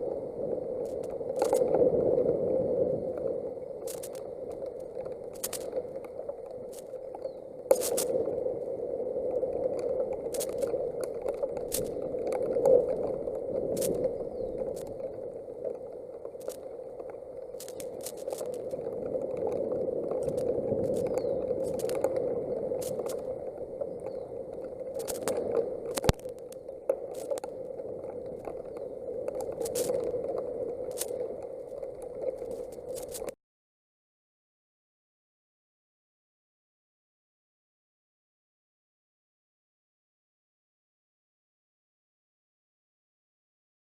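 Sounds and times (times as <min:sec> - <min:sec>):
wind: 0:00.0 - 0:33.4
sharp crackling clicks: 0:00.8 - 0:01.8, 0:03.2 - 0:08.6, 0:09.3 - 0:33.4.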